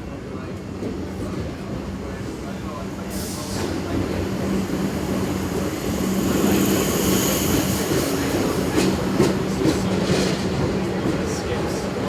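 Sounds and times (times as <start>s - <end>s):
electric train humming: 3.7s - 10.0s.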